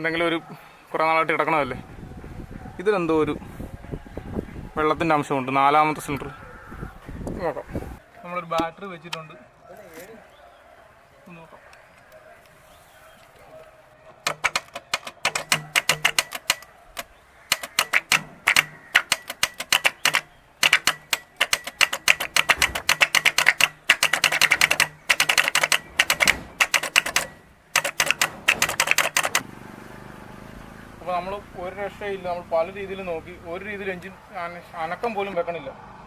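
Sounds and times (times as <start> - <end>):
starter solenoid clicking rapidly: 14.2 - 29.4.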